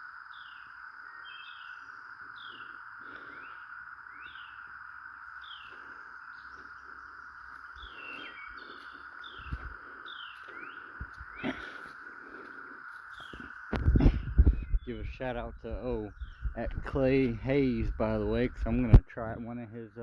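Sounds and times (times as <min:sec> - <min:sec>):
cicada chorus: 0:00.0 - 0:20.0
low thumps: 0:13.8 - 0:19.1.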